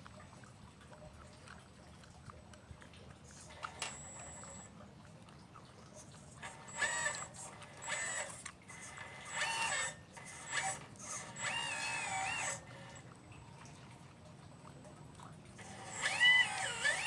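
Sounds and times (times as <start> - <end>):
small electric motors whining: 3.4 - 4.7, 6.4 - 13.1, 15.6 - 17.0.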